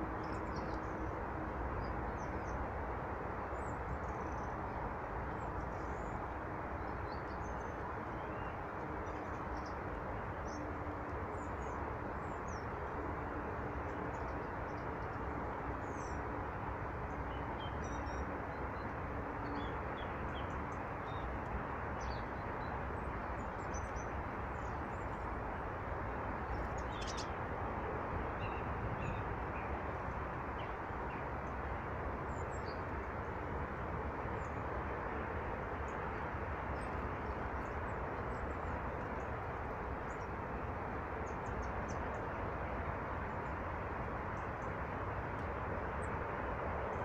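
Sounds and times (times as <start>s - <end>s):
steady rushing noise: 0.0s - 47.0s
small birds chirping: 26.5s - 27.4s.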